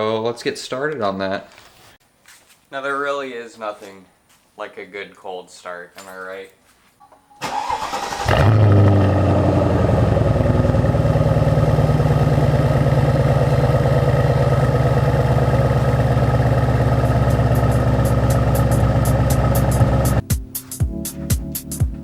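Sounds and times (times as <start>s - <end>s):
car engine revving and idling: 8.0s - 20.2s.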